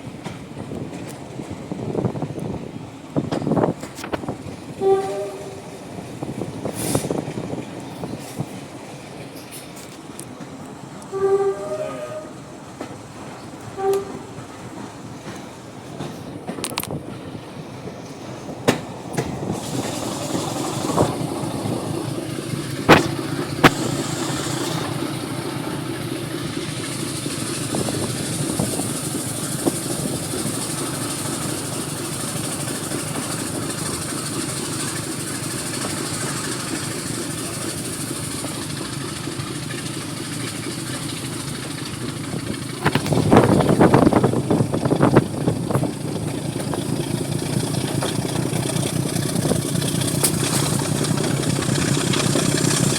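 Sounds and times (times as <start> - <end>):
diesel locomotive engine running: 0.0 - 52.9.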